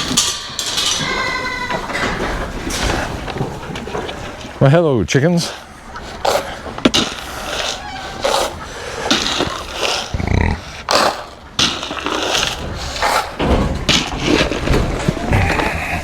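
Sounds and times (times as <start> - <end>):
goats and sheep bleating: 0.9 - 2.4, 7.2 - 10.7.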